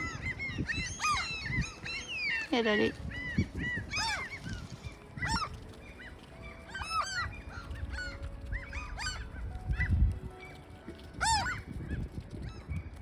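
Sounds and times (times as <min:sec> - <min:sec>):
gulls calling: 0:00.0 - 0:11.8
wind buffeting microphone: 0:00.0 - 0:13.0.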